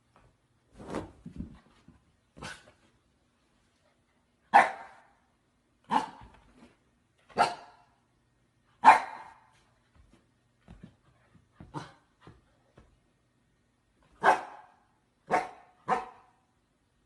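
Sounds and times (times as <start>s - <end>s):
dog barking: 4.5s - 5.1s, 5.9s - 6.2s, 7.4s - 7.8s, 8.8s - 9.5s, 14.2s - 16.4s.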